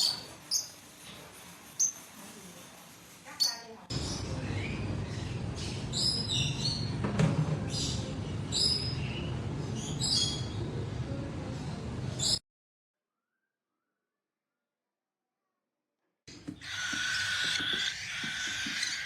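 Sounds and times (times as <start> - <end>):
parrot chirping: 16.5 - 19.0.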